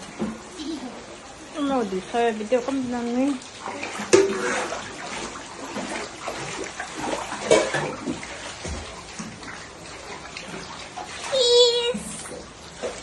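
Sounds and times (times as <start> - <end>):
floodwater flowing and splashing: 0.0 - 13.0.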